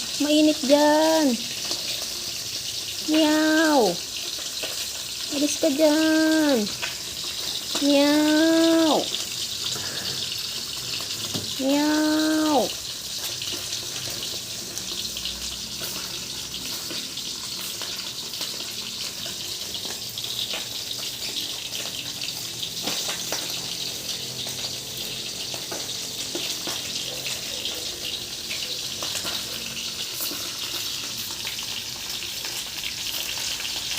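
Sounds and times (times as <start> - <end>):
food sizzling in a pan: 0.0 - 33.9.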